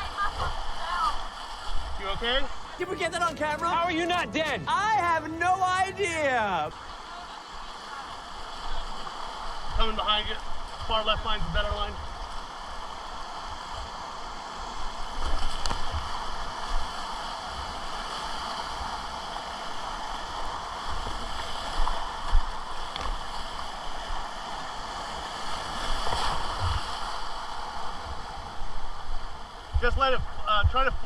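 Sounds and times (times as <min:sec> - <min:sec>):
river rapids rushing: 0:02.8 - 0:06.9.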